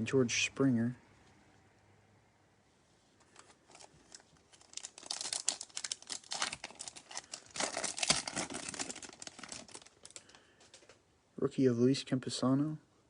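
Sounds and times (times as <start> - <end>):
foil wrapper tearing and crinkling: 3.3 - 10.4.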